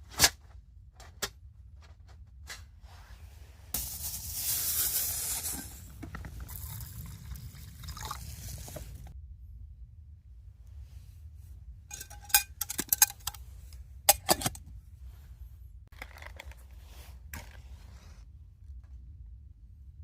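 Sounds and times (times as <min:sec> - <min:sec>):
cookware rattling: 0:11.9 - 0:13.4
metal cookware clinking: 0:11.9 - 0:13.4, 0:14.1 - 0:14.6.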